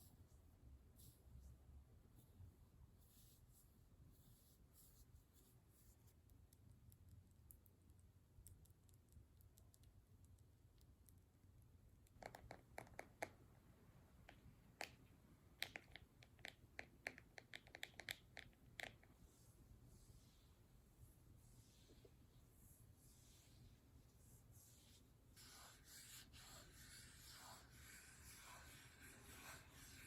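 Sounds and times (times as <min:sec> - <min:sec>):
small clicks and taps: 0:12.0 - 0:13.4, 0:14.2 - 0:19.2.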